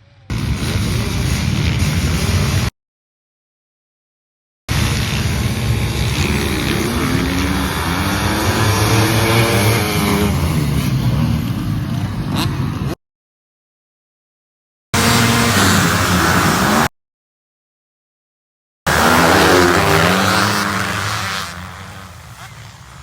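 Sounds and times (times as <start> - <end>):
dirt bike engine accelerating: 0.1 - 2.7, 4.7 - 13.0, 15.0 - 16.9, 18.9 - 23.0.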